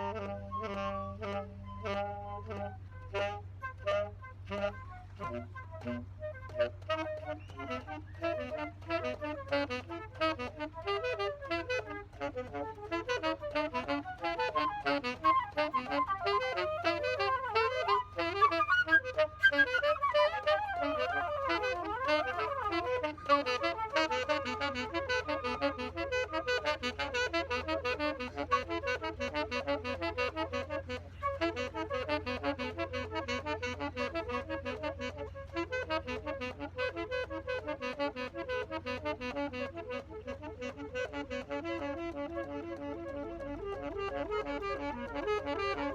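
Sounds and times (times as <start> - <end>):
live instrumental music: 4.5 - 28.3.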